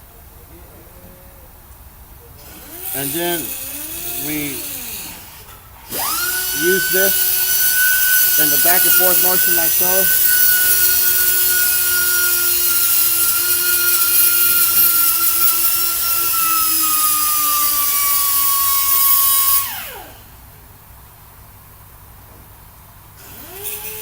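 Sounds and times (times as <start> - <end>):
power tool high whine: 2.4 - 20.4, 23.2 - 24.0.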